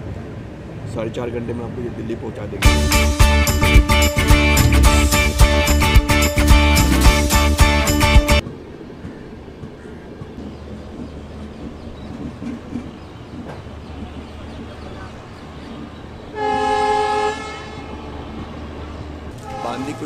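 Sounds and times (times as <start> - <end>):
train wheel and carriage noise: 8.4 - 20.0
train horn: 16.3 - 18.4, 19.3 - 20.0.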